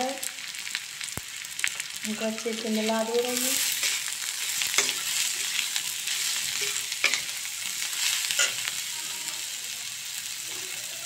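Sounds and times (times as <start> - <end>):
vegetables sizzling in oil: 0.0 - 11.0
metal spatula scraping pan: 3.3 - 9.2.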